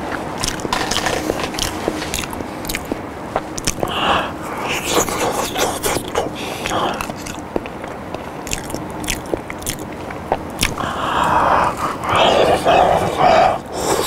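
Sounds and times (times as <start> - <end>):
wet mouth chewing clicks: 0.1 - 14.0
breathy noise: 3.7 - 8.8, 10.6 - 14.0.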